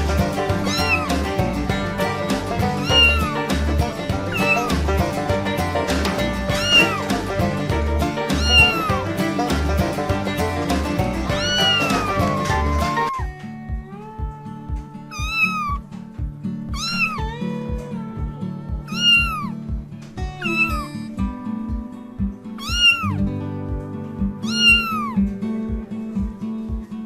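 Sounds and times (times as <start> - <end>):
background music with beat: 0.0 - 27.0
cat meowing: 0.4 - 1.3, 2.6 - 3.6, 4.2 - 4.8, 6.5 - 7.3, 8.3 - 9.0, 11.3 - 15.9, 16.7 - 19.7, 20.4 - 21.1, 22.6 - 23.3, 24.4 - 25.3.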